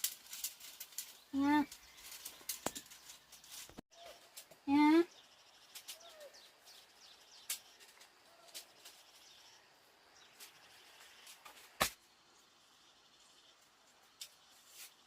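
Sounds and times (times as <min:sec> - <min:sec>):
faint bird chirps: 0:01.0 - 0:11.7.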